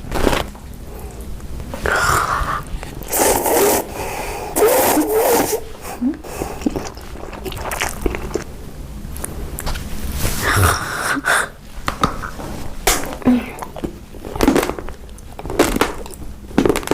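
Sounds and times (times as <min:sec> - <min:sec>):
crunchy bites: 0:00.0 - 0:00.7, 0:12.8 - 0:16.9
chewing clicks and smacks: 0:13.6 - 0:16.9.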